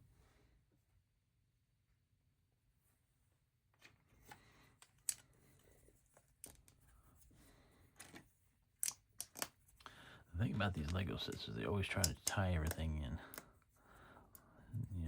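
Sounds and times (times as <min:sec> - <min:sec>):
plastic bricks clicking: 0:04.8 - 0:05.3, 0:06.4 - 0:06.8, 0:08.8 - 0:09.6, 0:10.8 - 0:13.5.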